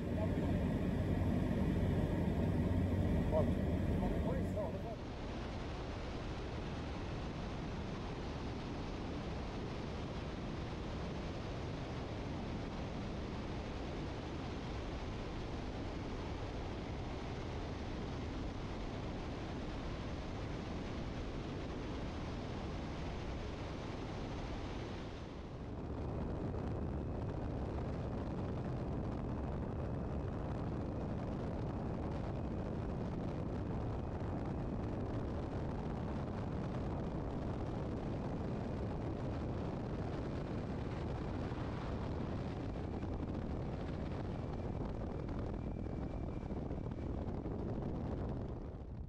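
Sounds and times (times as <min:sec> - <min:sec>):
rushing air noise: 0:00.0 - 0:05.0
light airplane engine droning: 0:00.0 - 0:48.8.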